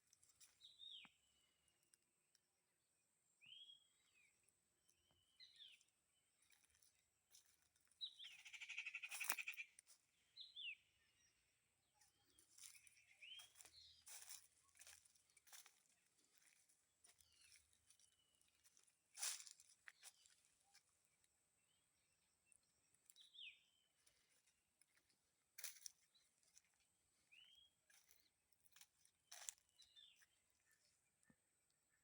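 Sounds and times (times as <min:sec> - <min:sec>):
bird chirps: 0:08.0 - 0:15.7.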